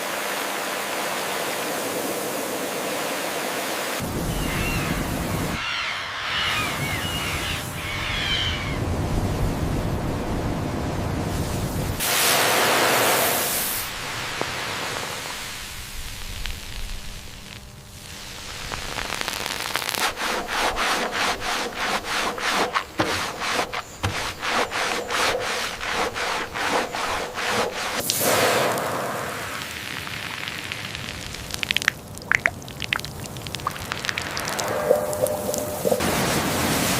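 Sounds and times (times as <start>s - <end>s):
hand rubbing on a surface: 20.0s - 28.0s.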